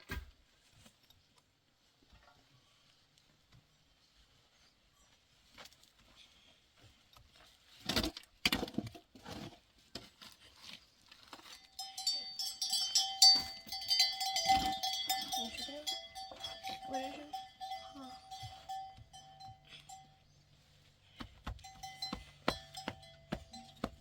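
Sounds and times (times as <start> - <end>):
livestock bells clanking: 11.5 - 24.0.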